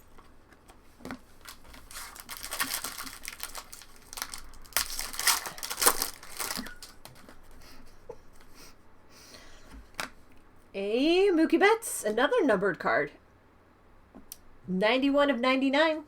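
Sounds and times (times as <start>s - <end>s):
wrapper being torn and crinkled: 1.3s - 7.2s.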